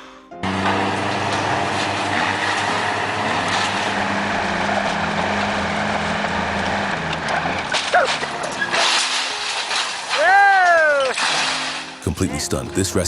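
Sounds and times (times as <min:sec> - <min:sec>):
road and wind noise: 0:00.4 - 0:08.6
heavy vehicle engine running: 0:00.4 - 0:09.2.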